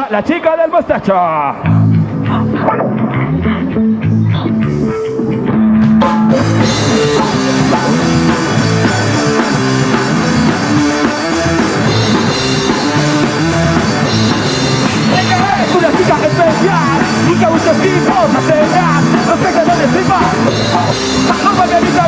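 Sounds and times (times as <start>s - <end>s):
bass guitar riff: 1.5s - 22.0s
electric guitar riff: 1.6s - 22.0s
drum kit and cymbals: 5.5s - 22.0s.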